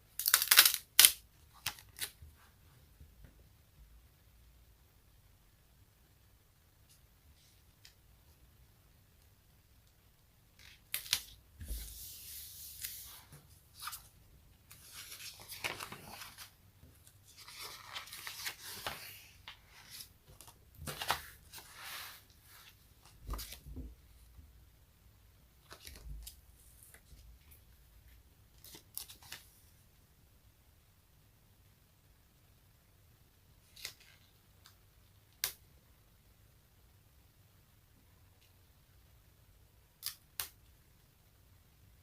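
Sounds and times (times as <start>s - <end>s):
sticky surfaces peeling apart: 0.2s - 1.1s.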